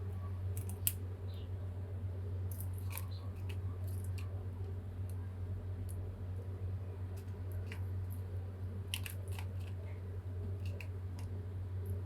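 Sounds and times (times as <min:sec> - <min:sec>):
light clicks and crinkles: 0:00.0 - 0:01.4, 0:02.5 - 0:12.0
steady low hum: 0:00.0 - 0:12.0.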